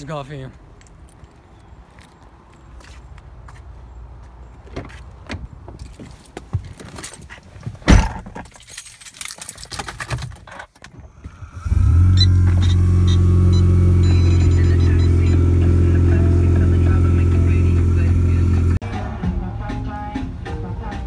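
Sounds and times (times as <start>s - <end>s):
keys jangling: 8.0s - 10.7s
car engine starting and idling: 10.9s - 18.8s.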